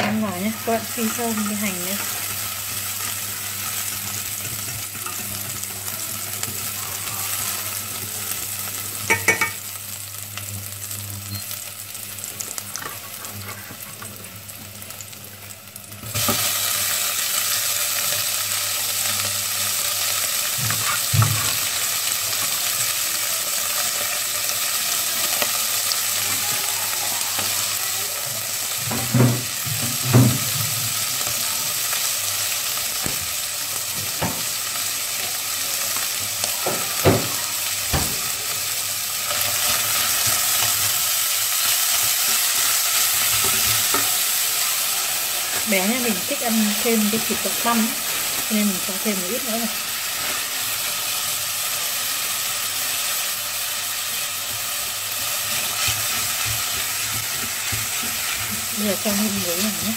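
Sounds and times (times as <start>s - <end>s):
shallots sizzling in hot oil: 0.0s - 59.9s
chopsticks stirring in pot: 55.2s - 59.9s.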